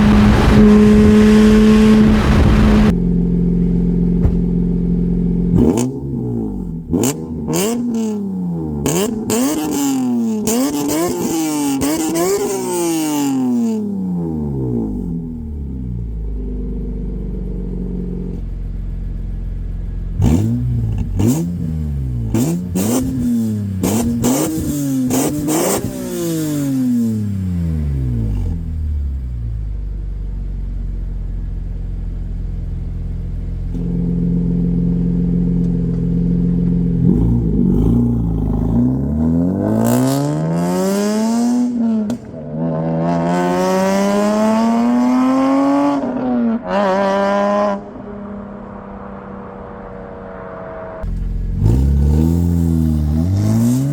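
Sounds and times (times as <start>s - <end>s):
car accelerating hard: 0.0s - 3.0s, 20.1s - 28.7s, 33.6s - 53.9s
car engine idling and revving: 0.0s - 53.9s.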